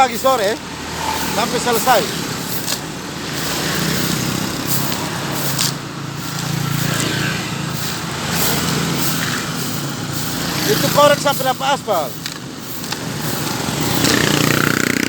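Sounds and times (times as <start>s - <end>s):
vehicle engine running: 0.0s - 15.0s
short scraping swishes: 0.2s - 10.9s.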